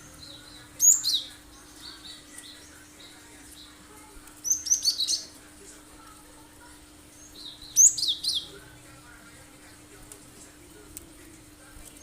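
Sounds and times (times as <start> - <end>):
bird chirping high-pitched: 0.0 - 3.8, 4.4 - 5.4, 7.1 - 8.6.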